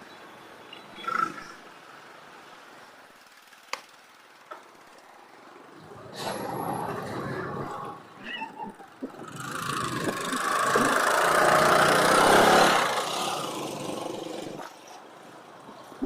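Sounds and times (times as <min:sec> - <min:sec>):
motor vehicle passing: 0:03.2 - 0:15.0.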